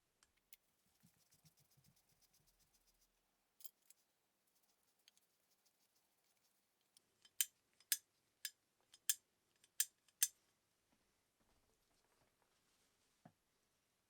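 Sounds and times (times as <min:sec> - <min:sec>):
small metal tools clicking: 0:07.2 - 0:10.3.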